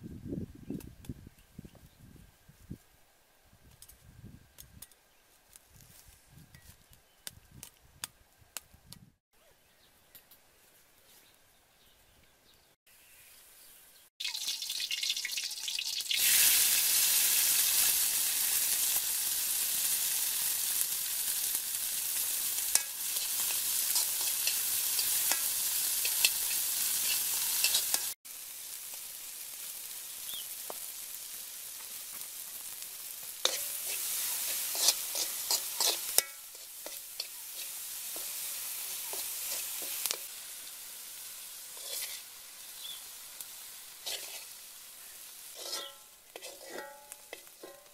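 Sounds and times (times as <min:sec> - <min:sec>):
ants sizzling in a wok: 0:14.2 - 0:47.9
spatula scraping a pan: 0:22.7 - 0:28.2, 0:33.4 - 0:40.3, 0:41.7 - 0:42.3, 0:44.0 - 0:44.6, 0:45.4 - 0:47.9.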